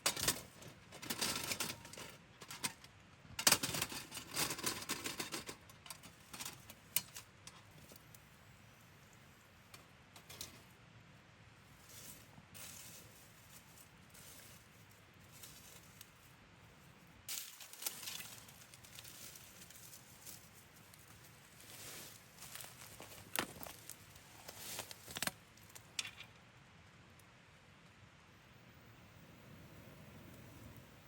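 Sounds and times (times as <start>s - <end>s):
soft steady hiss: 0.0s - 31.0s
rustling handling sounds: 11.8s - 26.0s.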